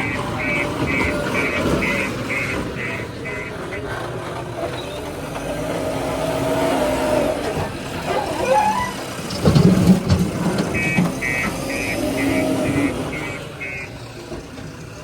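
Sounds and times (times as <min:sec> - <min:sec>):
rapid high beeping: 0:00.0 - 0:03.9, 0:10.7 - 0:14.0
diesel engine of heavy machinery: 0:00.0 - 0:15.0.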